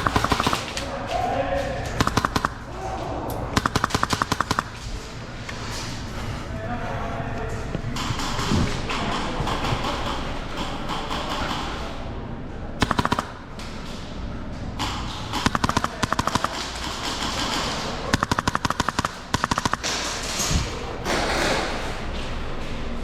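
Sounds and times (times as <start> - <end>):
airsoft gun bursts: 0.0 - 0.9, 2.0 - 2.7, 3.6 - 5.0, 12.8 - 13.5, 14.8 - 21.7.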